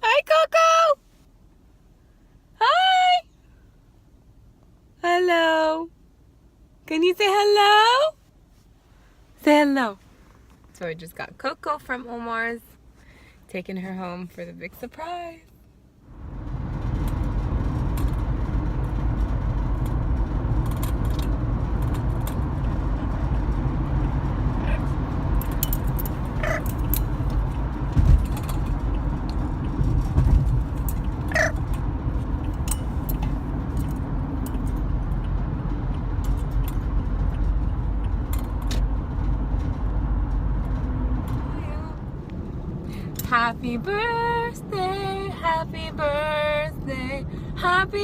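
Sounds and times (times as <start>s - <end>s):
car road rumble: 0.0s - 48.0s
car bumps: 25.4s - 34.0s
parrot calls: 26.4s - 26.6s, 31.3s - 31.6s.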